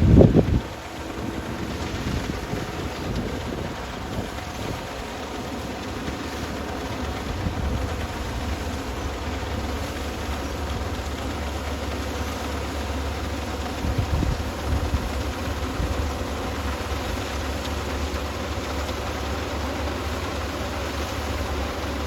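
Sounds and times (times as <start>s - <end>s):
combine harvester running: 0.0s - 22.0s.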